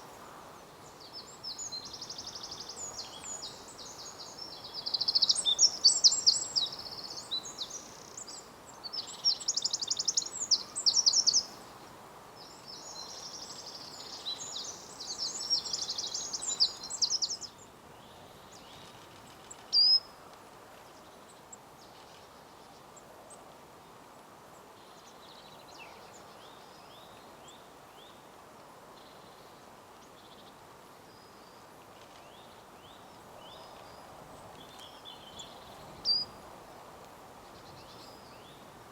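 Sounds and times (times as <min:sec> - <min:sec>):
woodland background: 0:00.0 - 0:38.9
small birds singing trilled phrases: 0:01.1 - 0:11.6, 0:12.7 - 0:17.6, 0:19.5 - 0:20.0.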